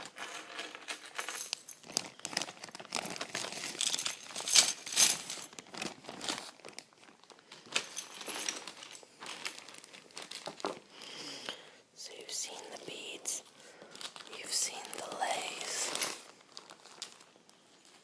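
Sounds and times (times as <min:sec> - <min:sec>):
plastic crinkling: 0:00.0 - 0:11.6, 0:12.5 - 0:18.0.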